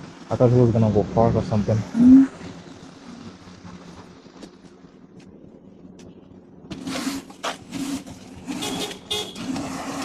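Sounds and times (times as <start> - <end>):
street noise: 0.0 - 10.0
vehicle hum: 0.0 - 10.0.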